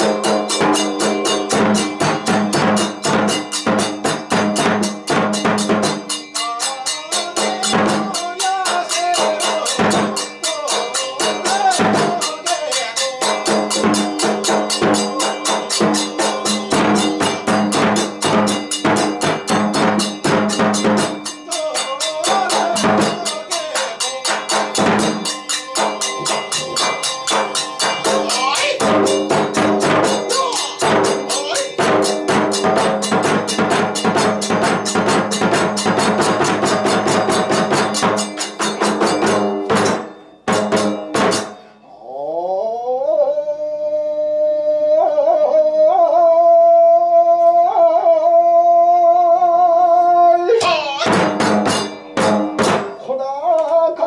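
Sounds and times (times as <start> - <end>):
fast driving drumming: 0.0 - 41.6, 50.6 - 53.2
small clashing cymbals: 0.0 - 41.8, 50.6 - 53.1
wavering flute melody: 24.8 - 32.4.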